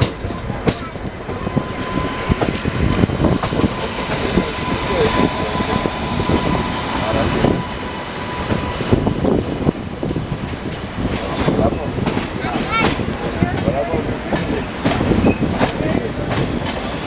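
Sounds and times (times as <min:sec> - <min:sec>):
wheels clattering over track: 0:00.0 - 0:05.3
train rumbling: 0:00.0 - 0:17.0.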